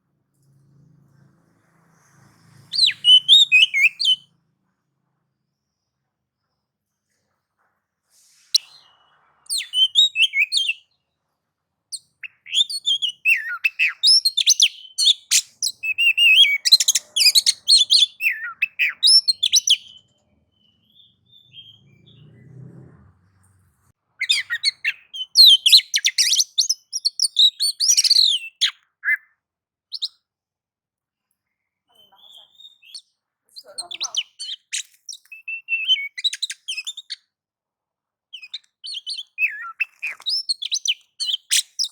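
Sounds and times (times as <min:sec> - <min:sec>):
bird chirping and whistling: 0:02.7 - 0:04.2, 0:08.5 - 0:10.9, 0:12.0 - 0:22.3, 0:24.2 - 0:29.2, 0:29.9 - 0:30.1, 0:32.2 - 0:37.2, 0:38.4 - 0:41.9.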